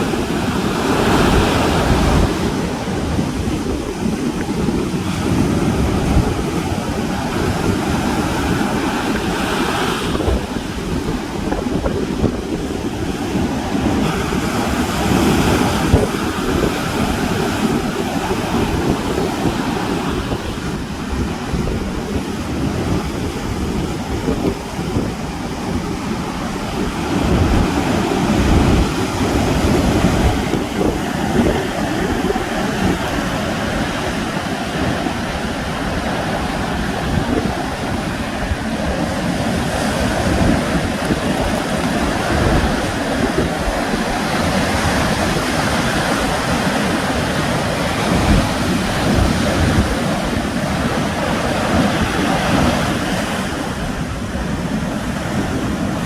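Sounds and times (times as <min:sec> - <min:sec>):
sea surf washing ashore: 0:00.0 - 0:56.0
wind buffeting microphone: 0:00.0 - 0:56.0.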